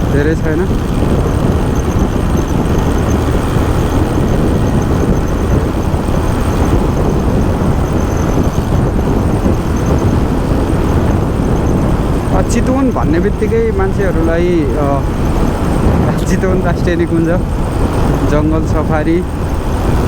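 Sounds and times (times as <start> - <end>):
motorcycle road noise: 0.0 - 20.0
wind buffeting microphone: 0.0 - 20.0.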